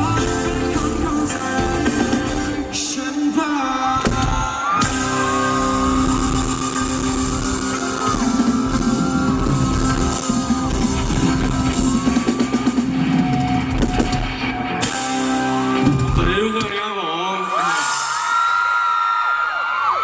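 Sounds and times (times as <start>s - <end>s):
bass guitar: 0.0s - 2.8s, 4.8s - 16.7s
person singing: 0.0s - 9.2s
electric guitar: 0.0s - 16.7s
drums: 0.0s - 17.0s.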